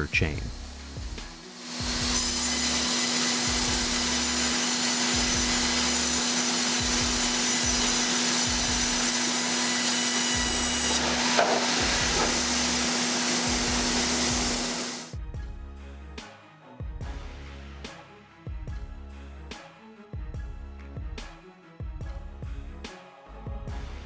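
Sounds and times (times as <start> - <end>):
band saw cutting timber: 0.0 - 15.2
constant machine hum: 0.0 - 15.2.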